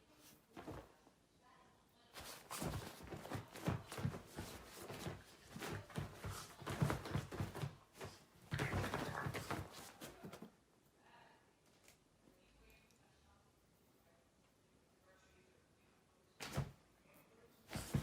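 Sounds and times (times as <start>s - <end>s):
knocks taps and scuffs: 2.2s - 10.5s, 17.7s - 18.0s.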